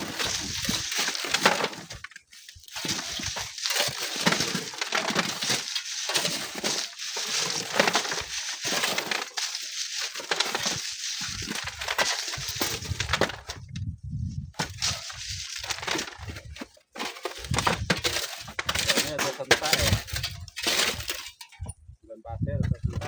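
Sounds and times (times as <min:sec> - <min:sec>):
sand and stones trickling down: 0:00.0 - 0:13.2
wind gusts on microphone: 0:12.7 - 0:14.6, 0:21.6 - 0:23.0.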